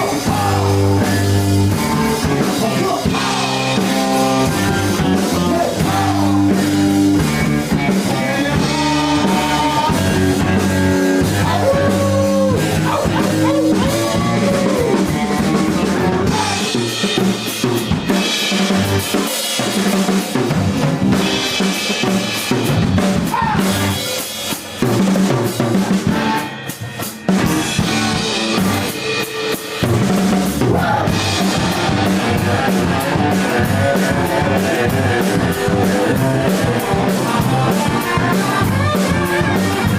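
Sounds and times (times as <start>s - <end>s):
bending guitar lines: 0.0s - 16.8s
rock band playing instrumental: 0.0s - 39.9s.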